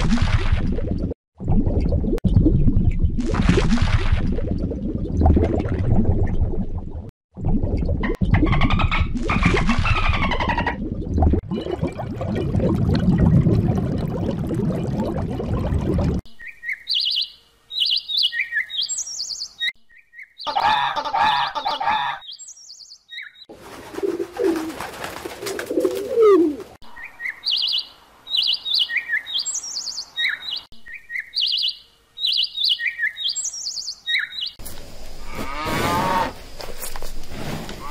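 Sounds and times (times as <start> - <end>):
small bird chirping: 16.3 - 20.6, 22.2 - 23.5, 27.0 - 34.6.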